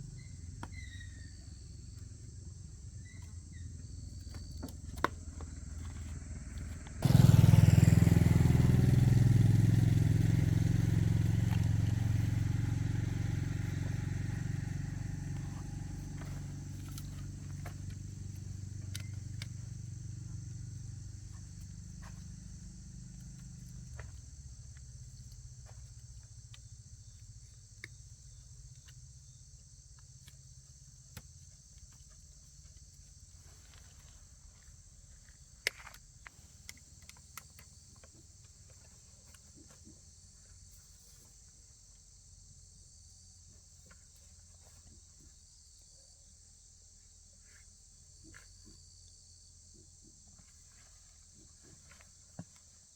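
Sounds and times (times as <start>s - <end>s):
motor low rumble: 0.0s - 29.9s
insects chirring: 0.0s - 52.9s.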